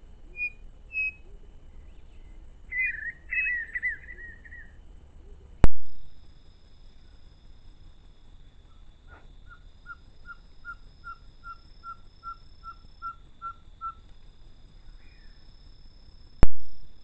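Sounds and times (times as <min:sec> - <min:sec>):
bird whistling short notes: 0:00.4 - 0:01.2, 0:02.7 - 0:04.7.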